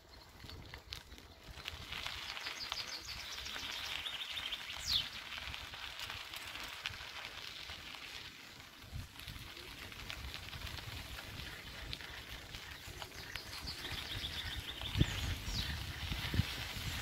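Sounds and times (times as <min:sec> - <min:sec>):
small birds chirping: 0:00.0 - 0:05.5, 0:11.4 - 0:17.0.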